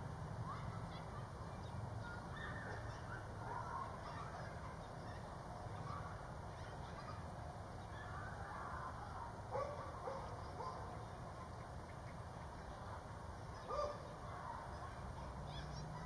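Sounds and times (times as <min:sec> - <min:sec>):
faint bird calls: 0:00.4 - 0:12.8.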